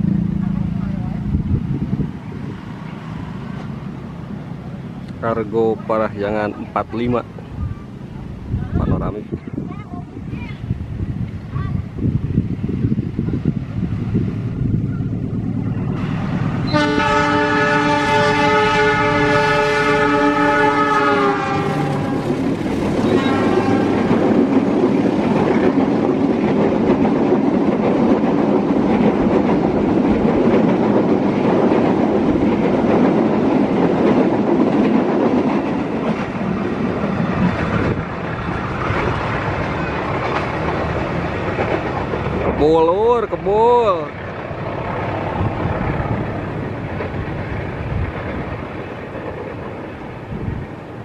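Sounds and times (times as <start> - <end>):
train rumbling past: 0.0 - 51.0
clickety-clack of train wheels: 13.3 - 51.0
diesel locomotive horn: 16.0 - 24.4.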